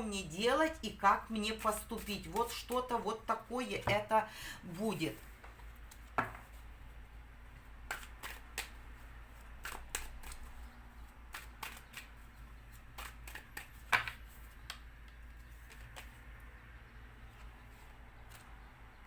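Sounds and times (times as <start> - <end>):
faint steady hum: 0.0 - 19.0
cards snapping and tapping: 7.9 - 8.8, 9.6 - 10.5, 11.3 - 12.1, 13.0 - 16.2.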